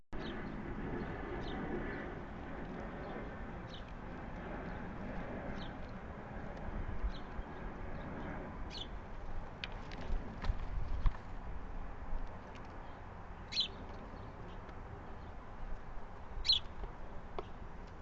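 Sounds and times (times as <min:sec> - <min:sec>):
short high bird chirps: 0:16.4 - 0:16.6.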